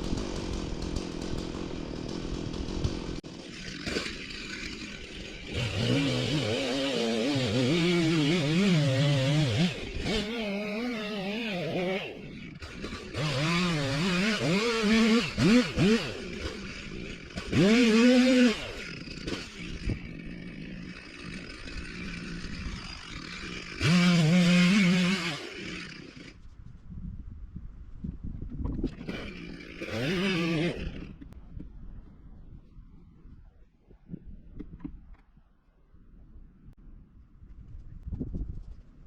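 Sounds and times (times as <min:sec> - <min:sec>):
chainsaw revving: 0:00.0 - 0:26.4, 0:28.9 - 0:31.4.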